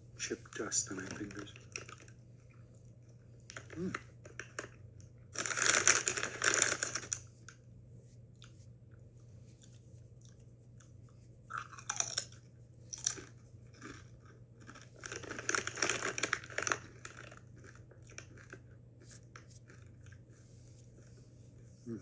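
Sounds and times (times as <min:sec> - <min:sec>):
person crunching tortilla chips: 0:05.4 - 0:07.2, 0:11.5 - 0:20.2.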